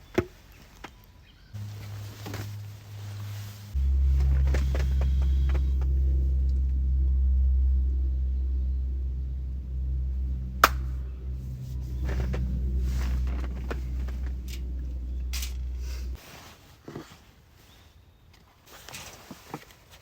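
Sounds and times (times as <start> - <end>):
low steady rumble: 1.5 - 16.5.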